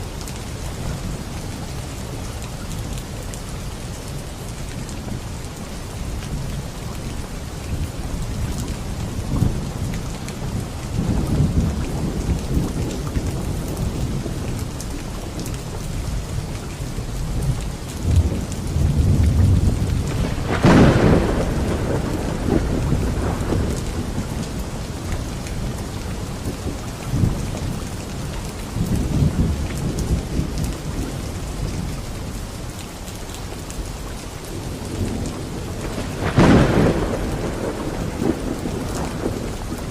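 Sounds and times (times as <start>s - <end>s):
heavy rain falling: 0.0s - 39.9s
sharp thunderclap: 18.0s - 24.6s, 35.0s - 39.9s
thunder rolling: 18.0s - 24.7s, 34.8s - 39.9s.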